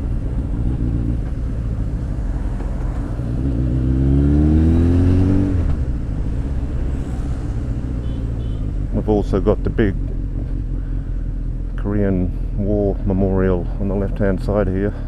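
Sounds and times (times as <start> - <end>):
motorcycle engine accelerating: 0.0 - 11.7
wind rush: 1.6 - 10.4.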